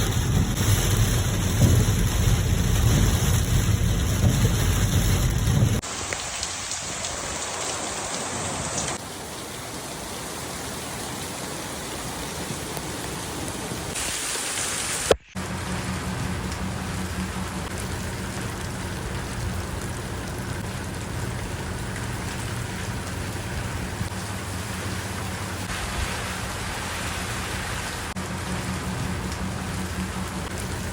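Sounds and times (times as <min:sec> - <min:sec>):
low rumble: 0:00.0 - 0:05.8, 0:15.4 - 0:30.9
rain falling: 0:00.0 - 0:30.9.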